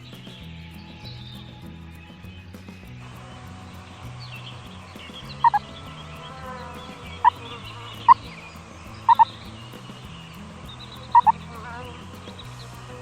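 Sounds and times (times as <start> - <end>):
faint background music: 0.0 - 13.0
faint bird chirping: 0.0 - 13.0
chickens clucking: 5.0 - 9.4, 10.7 - 11.8.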